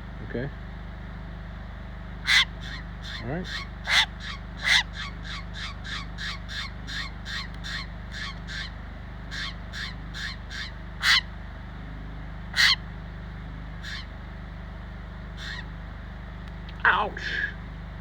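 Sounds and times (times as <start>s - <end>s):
bird harsh calls: 2.2s - 11.4s, 12.5s - 12.9s, 13.7s - 14.2s, 15.3s - 15.8s.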